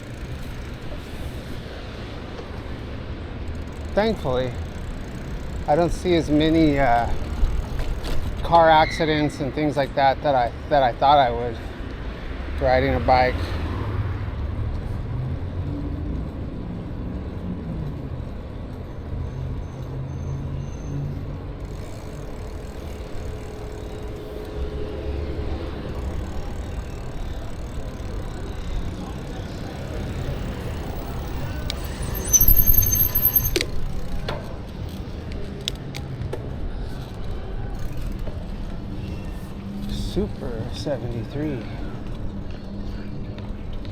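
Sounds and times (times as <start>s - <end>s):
road rumble: 0.0s - 43.9s
wind: 0.0s - 43.9s
high-pitched brake squeal: 8.6s - 9.4s, 18.9s - 21.3s, 30.4s - 33.9s.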